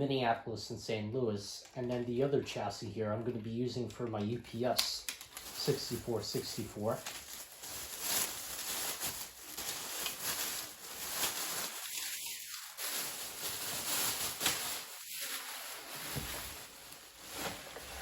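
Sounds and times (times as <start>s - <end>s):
faint clicks of model parts: 3.9s - 5.5s
soft rustling: 6.8s - 18.0s.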